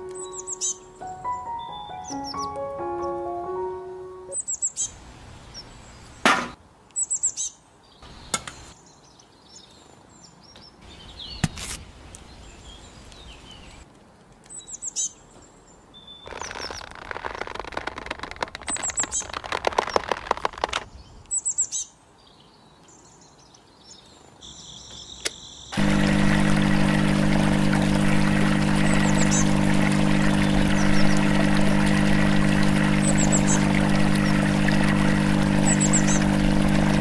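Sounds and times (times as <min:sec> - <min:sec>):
small birds chirping: 0:00.1 - 0:02.6, 0:20.9 - 0:25.8, 0:27.4 - 0:37.0.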